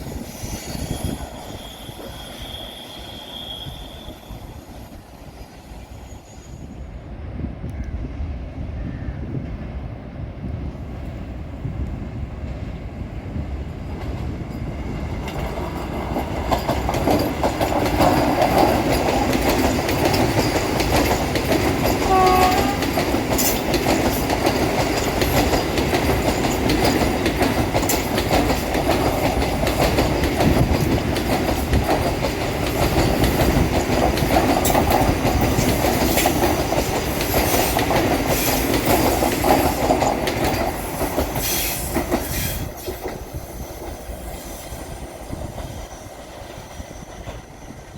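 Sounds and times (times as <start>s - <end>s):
train wheels clattering: 13.9s - 47.9s.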